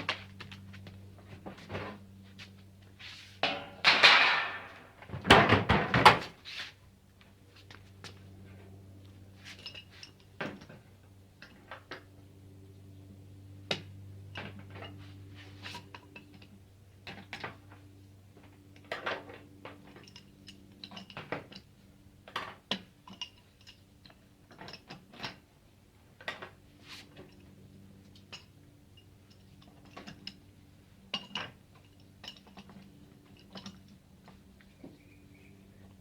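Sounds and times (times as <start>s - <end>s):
tools clinking on sheet metal: 3.4s - 5.0s.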